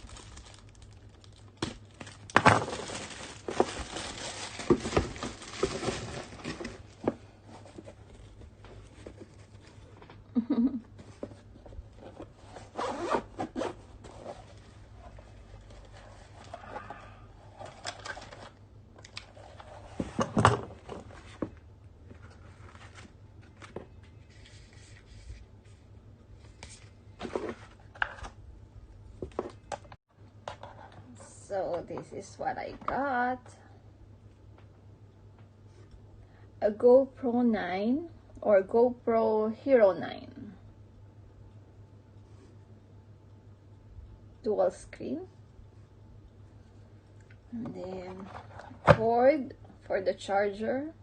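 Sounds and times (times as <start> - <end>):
packaging rustling and scraping: 0.0 - 10.1, 11.0 - 28.3, 47.8 - 48.9.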